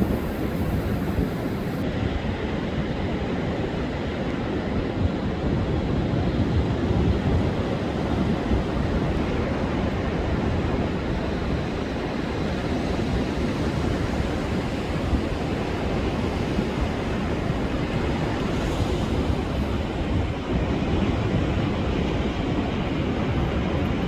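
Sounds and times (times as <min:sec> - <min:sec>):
surf breaking on beach: 0:00.0 - 0:01.8
wind rumbling on microphone: 0:00.0 - 0:24.0.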